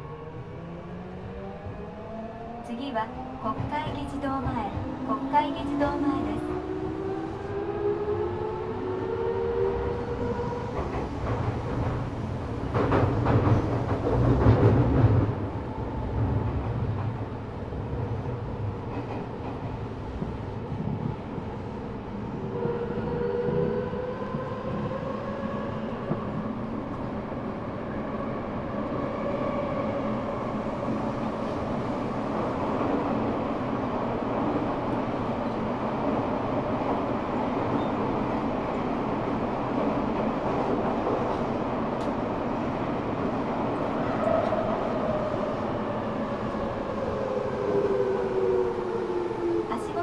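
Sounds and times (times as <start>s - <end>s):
rumble of wheels on rail: 0.0s - 50.0s.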